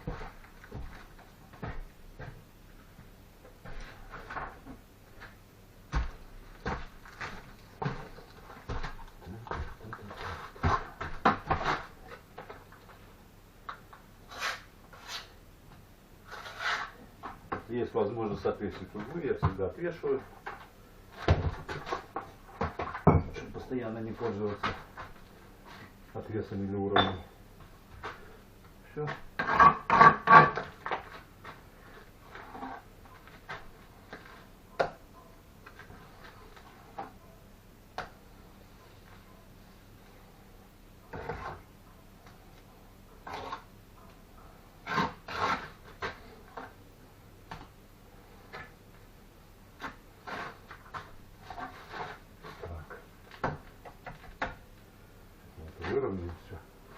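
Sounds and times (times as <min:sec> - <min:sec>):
soft scrapes: 0:16.2 - 0:17.0.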